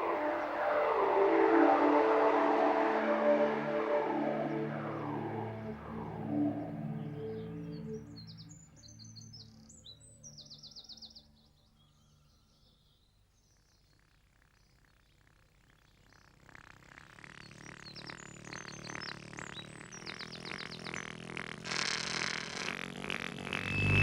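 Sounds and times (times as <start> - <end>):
soft pulsing sound: 0.0 - 8.2, 23.3 - 24.0
birds chirping: 0.0 - 13.6, 17.2 - 24.0.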